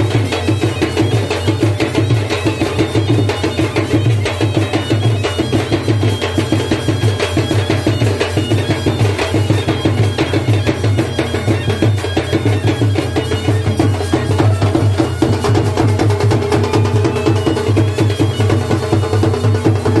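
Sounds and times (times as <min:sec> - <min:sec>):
hand drums beating fast rhythm: 0:00.0 - 0:20.0.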